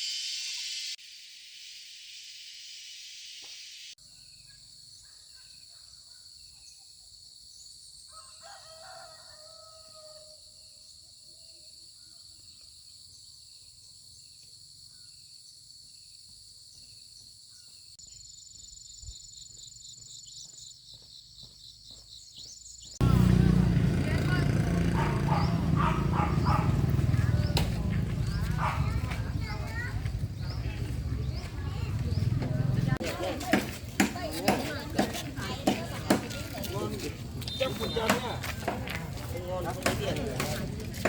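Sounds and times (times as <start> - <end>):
insects buzzing and chirping: 0.0 - 23.0
rooster crowing: 8.1 - 10.4.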